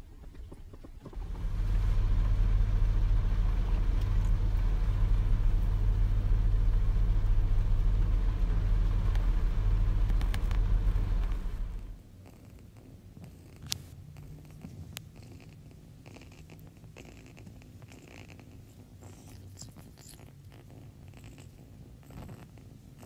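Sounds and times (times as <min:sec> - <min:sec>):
car engine rumble: 0:00.0 - 0:12.0.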